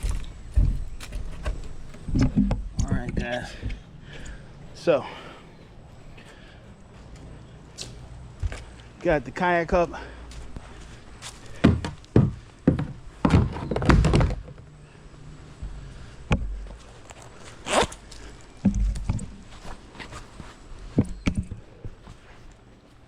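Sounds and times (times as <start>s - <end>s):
thumps and knocks of gear: 0.0s - 4.4s, 11.5s - 14.6s, 15.6s - 20.3s, 20.9s - 22.1s.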